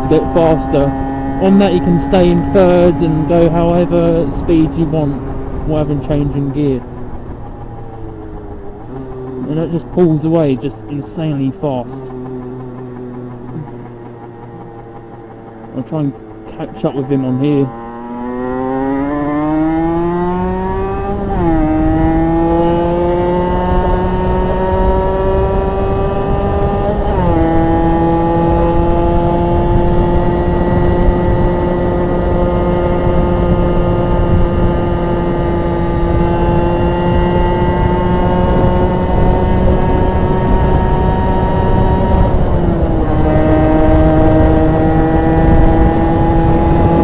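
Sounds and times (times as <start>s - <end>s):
two-stroke motorcycle engine accelerating: 0.0s - 47.0s
wind rumble on microphone: 18.0s - 47.0s.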